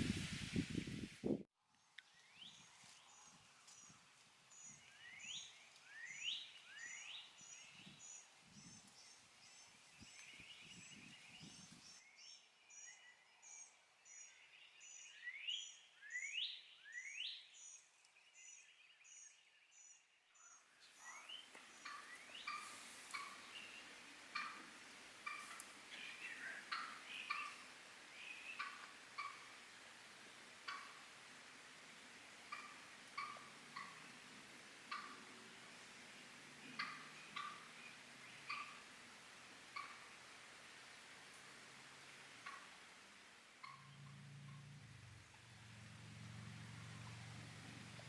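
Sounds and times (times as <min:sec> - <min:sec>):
songbirds chirping: 0:01.7 - 0:48.0.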